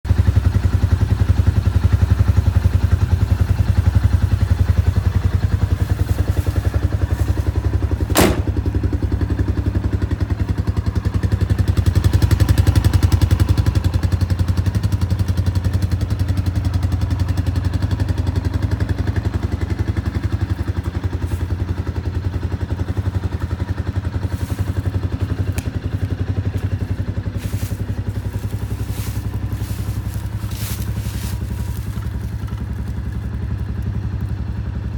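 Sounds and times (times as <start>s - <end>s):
utility vehicle engine idling: 0.1s - 34.9s
sharp click: 8.1s - 8.7s.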